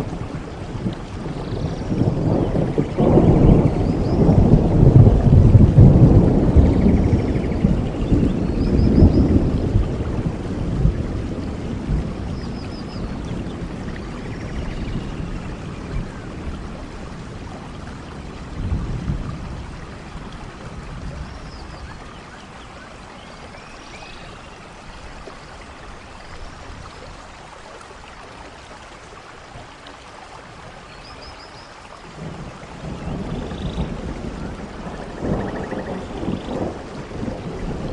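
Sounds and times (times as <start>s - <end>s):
rolling thunder: 0.0s - 22.1s, 32.2s - 37.9s
steady rain: 0.0s - 37.9s.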